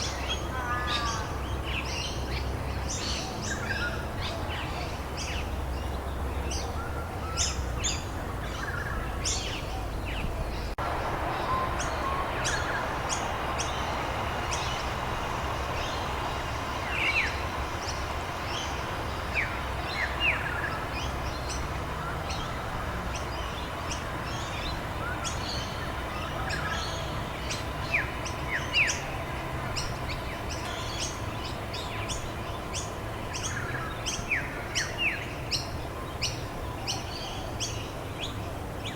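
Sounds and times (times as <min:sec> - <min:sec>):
small birds chirping: 0:00.0 - 0:38.9
rain hissing: 0:10.8 - 0:33.4.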